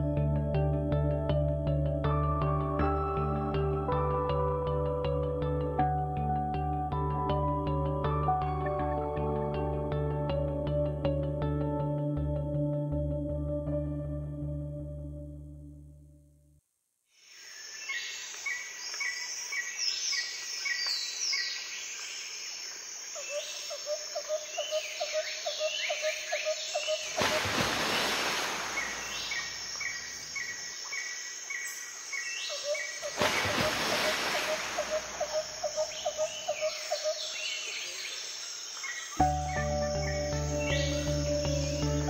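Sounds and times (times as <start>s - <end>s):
bird-like chirps: 28.6s - 41.9s
pulsing insect-like trill: 34.3s - 37.2s.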